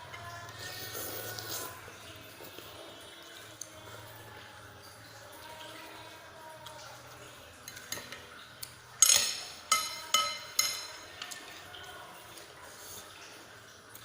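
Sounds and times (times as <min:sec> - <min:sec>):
cutlery clinking against bowl: 0:07.6 - 0:11.6.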